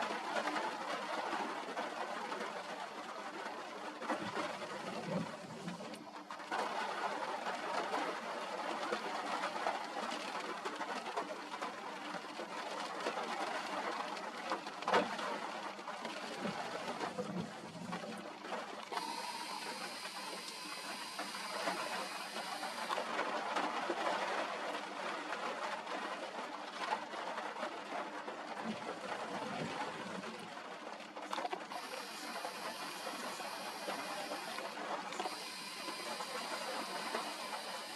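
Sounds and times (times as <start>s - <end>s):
rain: 0.0s - 37.9s
bright hiss: 19.0s - 23.0s, 31.8s - 37.9s.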